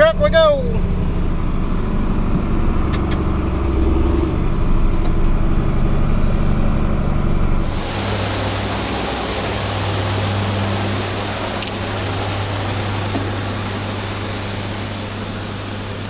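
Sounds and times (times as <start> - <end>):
combine harvester running: 0.0 - 16.0
loud hiss: 7.6 - 16.0.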